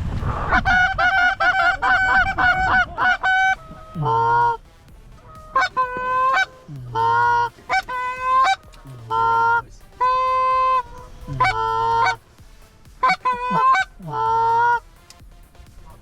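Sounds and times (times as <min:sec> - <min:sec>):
goose call clucks: 0:00.3 - 0:04.6, 0:05.2 - 0:12.2, 0:13.0 - 0:14.9
goose call honks: 0:00.3 - 0:04.6, 0:05.2 - 0:12.2, 0:13.0 - 0:14.9.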